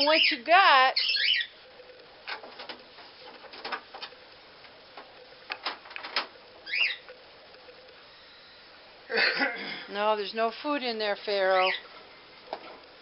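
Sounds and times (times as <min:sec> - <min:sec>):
parrot chirp: 0:00.0 - 0:01.6, 0:06.6 - 0:07.1, 0:11.5 - 0:11.9.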